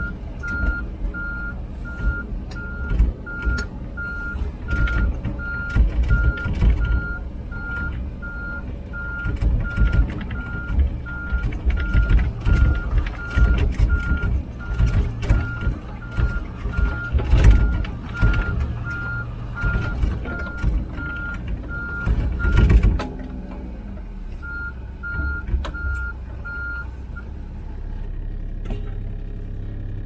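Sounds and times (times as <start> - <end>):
travel alarm beeping: 0.0 - 22.7
excavator diesel engine running: 0.0 - 30.0
rattling clanking knocks: 2.1 - 23.7.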